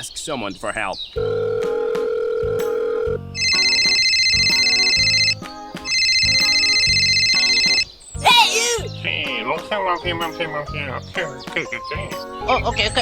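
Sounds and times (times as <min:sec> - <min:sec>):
dial tone: 0:01.2 - 0:07.8
telephone ringing: 0:01.2 - 0:07.9
light background music: 0:01.2 - 0:13.0.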